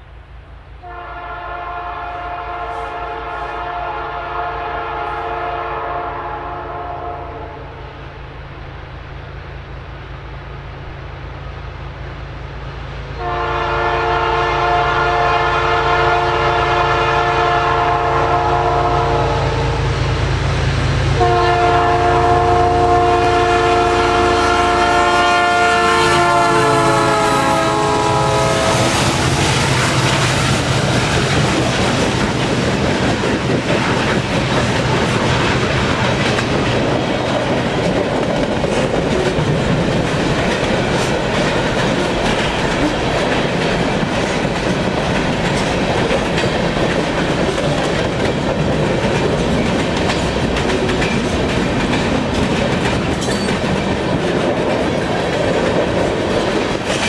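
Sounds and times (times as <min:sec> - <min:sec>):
locomotive engines droning: 0:00.0 - 0:57.0
locomotive air horn blasts: 0:00.8 - 0:07.8, 0:13.2 - 0:20.0, 0:21.1 - 0:30.6
freight cars rumbling past: 0:16.1 - 0:57.0
wheels clacking over rail joints: 0:25.8 - 0:57.0.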